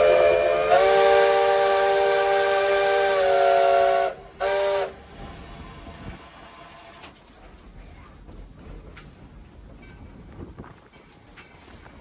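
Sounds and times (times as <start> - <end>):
locomotive steam whistle: 0.0 - 5.0.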